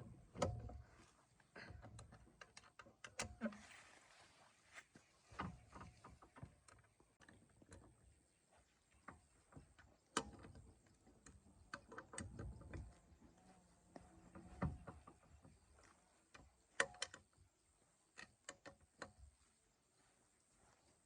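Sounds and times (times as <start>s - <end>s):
faint light clicks and knocks: 5.0s - 17.4s.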